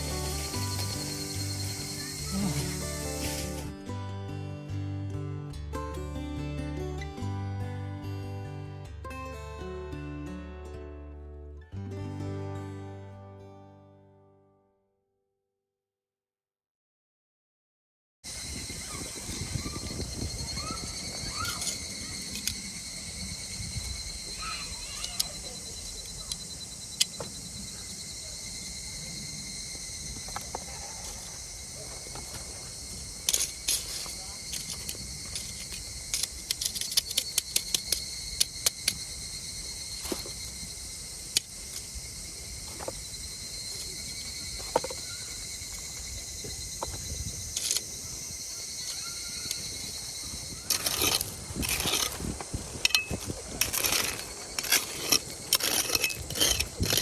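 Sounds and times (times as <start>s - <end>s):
night insects trilling: 0.0s - 3.8s, 18.3s - 57.0s.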